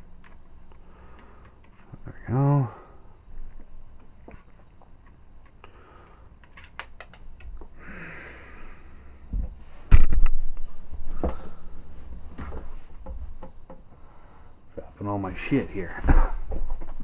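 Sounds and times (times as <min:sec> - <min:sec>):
plastic parts clicking and rattling: 0:06.4 - 0:07.7.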